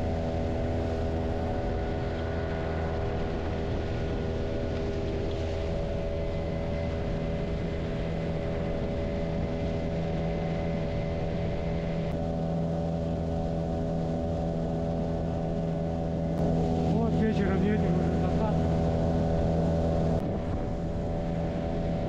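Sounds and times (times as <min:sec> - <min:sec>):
motorboat engine humming: 0:00.0 - 0:22.0.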